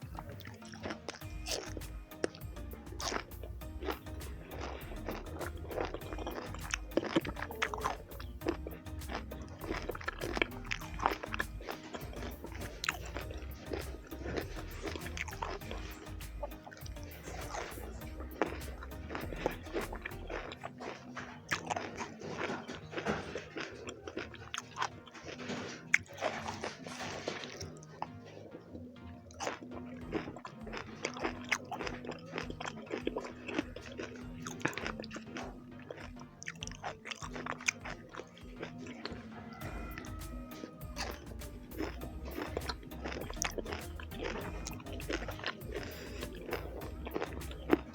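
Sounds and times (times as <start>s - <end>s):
biting and chewing: 0.0s - 47.9s
faint background music: 0.0s - 47.9s
mouth clicks and smacks: 0.0s - 47.9s.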